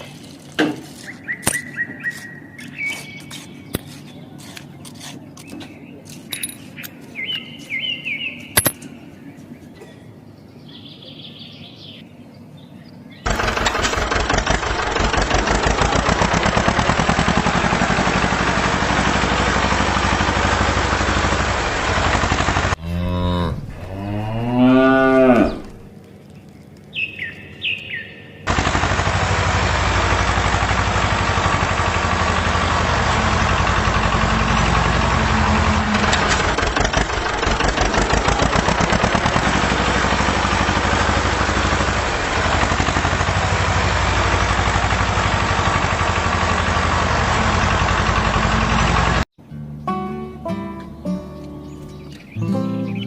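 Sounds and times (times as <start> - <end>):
engine running: 13.3 - 22.8, 28.5 - 49.3
cow mooing: 22.8 - 25.9.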